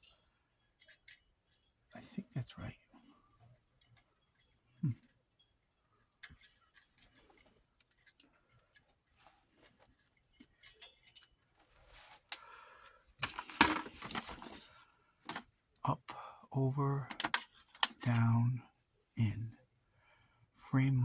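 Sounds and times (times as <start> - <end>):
film viewer parts clicking and rattling: 6.1 - 9.0, 9.6 - 12.5, 13.2 - 15.5, 17.0 - 18.3
scraping and clattering: 13.2 - 15.4, 17.1 - 18.1.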